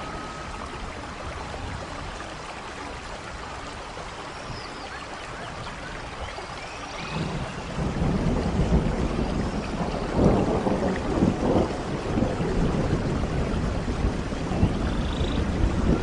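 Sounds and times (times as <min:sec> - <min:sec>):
rain: 0:00.0 - 0:16.0
low rumble of thunder: 0:07.0 - 0:16.0.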